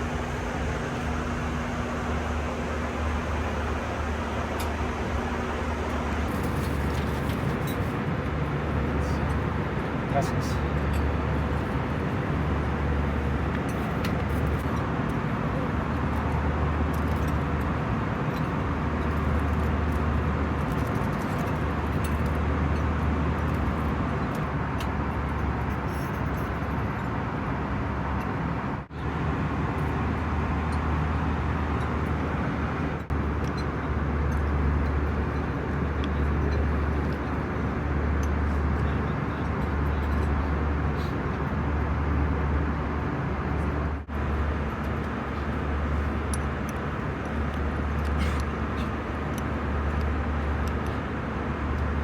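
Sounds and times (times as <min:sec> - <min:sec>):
airplane cabin airflow and drone: 0:00.0 - 0:25.8, 0:27.2 - 0:52.0.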